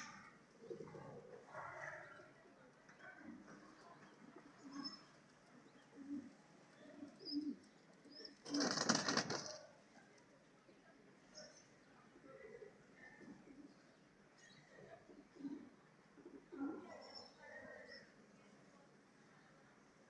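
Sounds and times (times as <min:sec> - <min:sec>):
pigeons cooing: 0:00.6 - 0:01.5, 0:05.8 - 0:06.3, 0:06.9 - 0:09.6, 0:14.8 - 0:17.0
wings flapping: 0:08.4 - 0:09.6.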